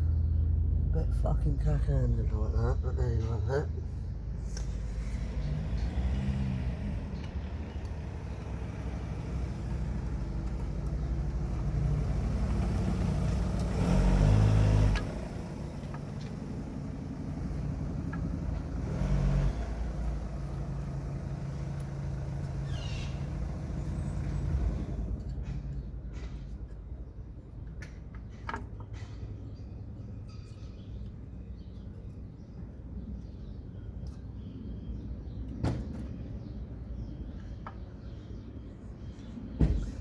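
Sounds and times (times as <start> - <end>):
motor vehicle engine running: 0.0 - 26.7.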